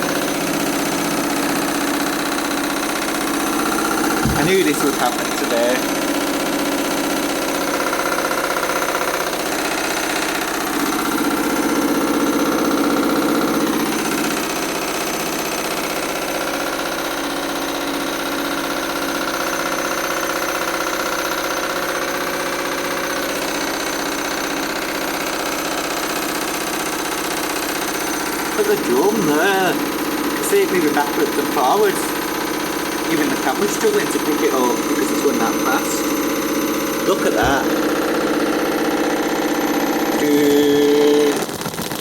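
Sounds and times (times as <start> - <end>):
motor whine: 0.0 - 18.0, 32.1 - 42.0
washing machine spinning unbalanced: 0.0 - 30.3.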